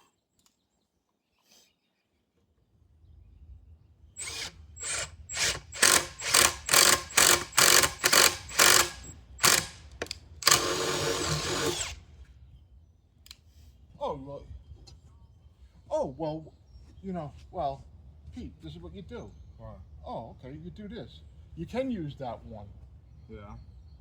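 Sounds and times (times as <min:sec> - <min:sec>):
power drill boring into wood: 0:04.2 - 0:12.0.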